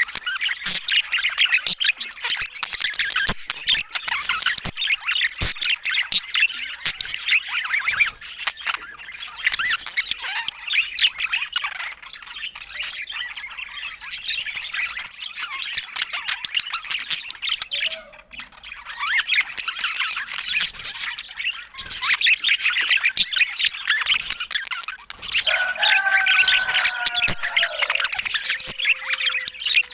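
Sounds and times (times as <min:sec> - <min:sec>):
budgerigars chattering: 0:00.0 - 0:29.9.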